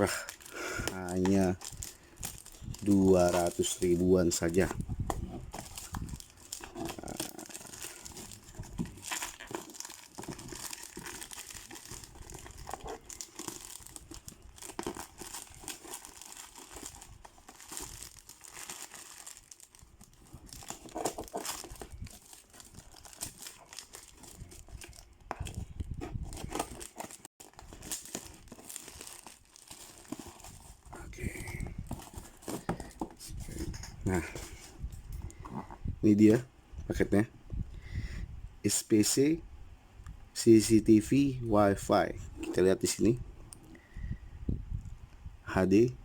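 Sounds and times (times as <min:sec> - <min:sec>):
packaging crinkling and tearing: 0:00.0 - 0:35.7.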